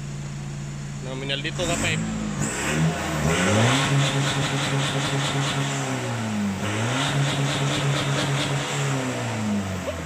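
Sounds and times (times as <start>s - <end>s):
vehicle engine revving: 1.2s - 10.0s.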